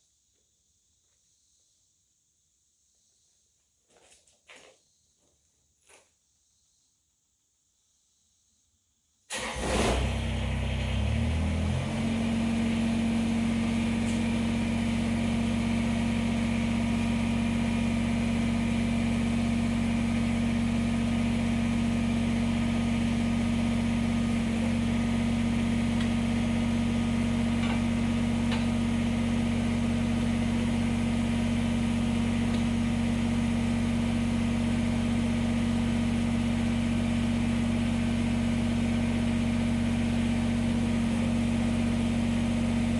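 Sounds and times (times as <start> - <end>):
tractor diesel engine starting and idling: 9.3 - 42.9.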